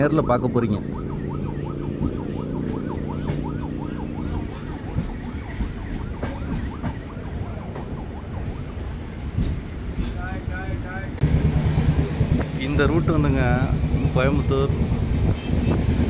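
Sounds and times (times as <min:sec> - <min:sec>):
siren yelping: 0:00.0 - 0:09.3
train rumbling: 0:00.0 - 0:16.0.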